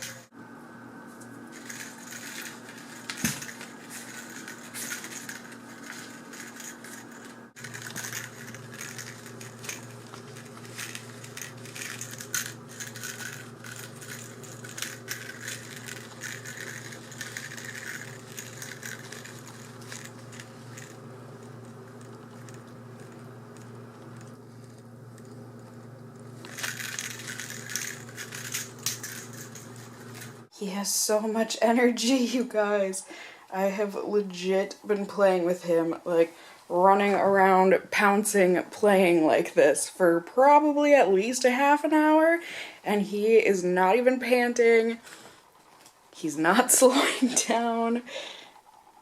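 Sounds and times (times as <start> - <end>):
steady background hum: 0.0 - 49.0
kitten playing with toy: 1.5 - 25.4, 26.4 - 30.4.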